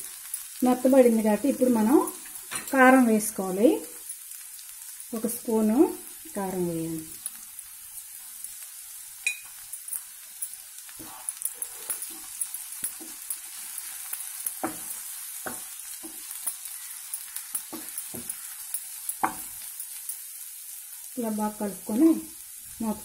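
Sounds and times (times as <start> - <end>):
vegetables sizzling in a frying pan: 0.0 - 23.0
spatula knocking and scraping pan: 11.0 - 16.6, 17.2 - 19.6.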